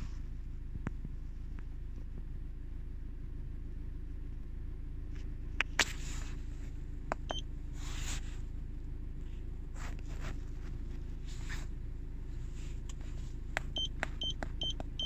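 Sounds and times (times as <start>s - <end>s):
car engine idling: 0.0s - 15.0s
rustle: 7.7s - 13.7s.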